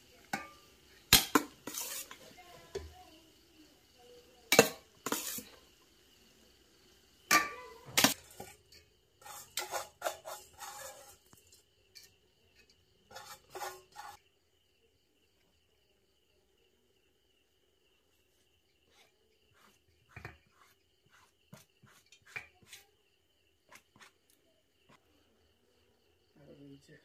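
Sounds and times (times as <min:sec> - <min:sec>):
metal utensils scraping a pot: 0:00.3 - 0:02.4, 0:04.5 - 0:05.6, 0:07.3 - 0:14.2.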